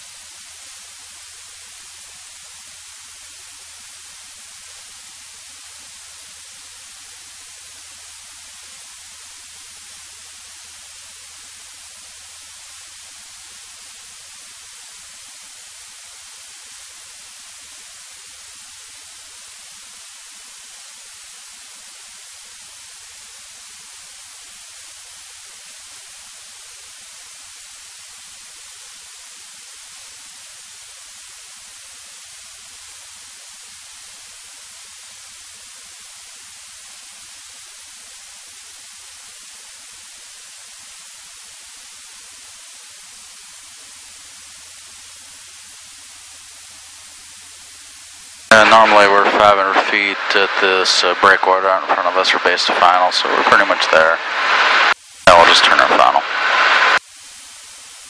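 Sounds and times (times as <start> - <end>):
intercom audio hiss: 43.0 - 58.0.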